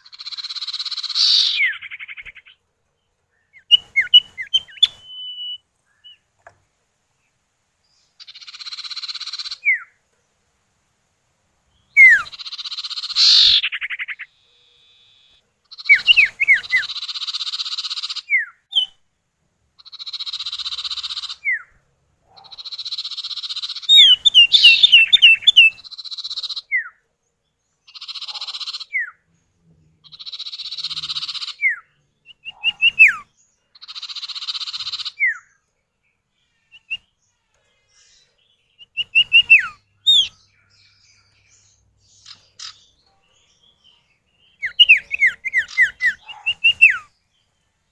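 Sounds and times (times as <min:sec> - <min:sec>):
bird sharp whistled notes: 0:03.7 - 0:06.2, 0:12.0 - 0:12.3
bird harsh buzzy rasps: 0:12.0 - 0:15.3.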